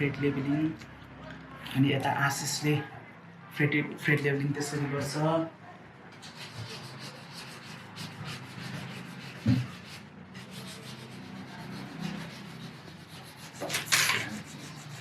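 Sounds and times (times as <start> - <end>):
file rubbing on guitar frets: 6.2 - 15.0.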